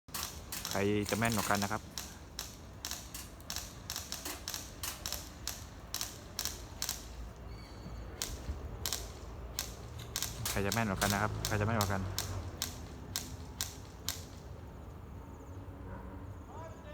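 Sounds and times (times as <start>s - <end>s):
bb gun shots: 0.1s - 7.3s, 8.2s - 14.4s.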